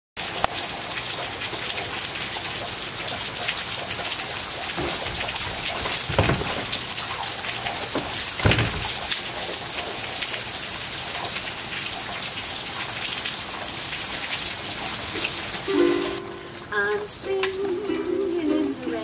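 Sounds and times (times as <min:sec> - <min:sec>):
rain falling: 0:00.2 - 0:19.0
heavy drops landing: 0:04.7 - 0:07.1, 0:07.9 - 0:09.2.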